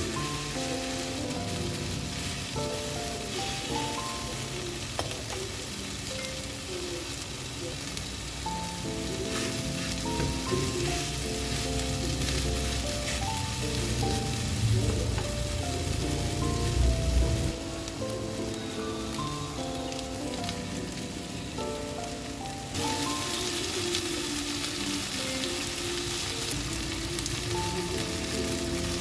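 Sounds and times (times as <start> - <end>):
meat sizzling in a frying pan: 0.0 - 29.0.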